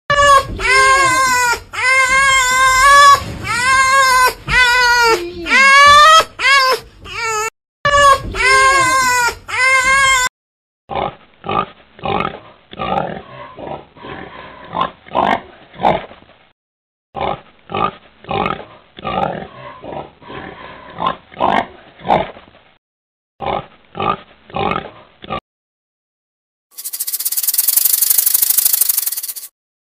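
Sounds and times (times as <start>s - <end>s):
pig grunting: 10.9s - 16.1s, 17.2s - 22.4s, 23.4s - 25.4s.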